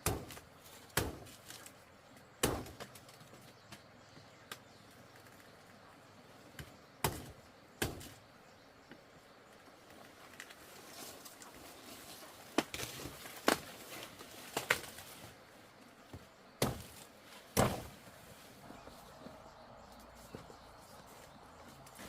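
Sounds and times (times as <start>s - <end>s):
sharp chopping strikes: 0.0s - 1.4s, 2.4s - 3.0s, 6.6s - 8.2s, 16.6s - 17.9s.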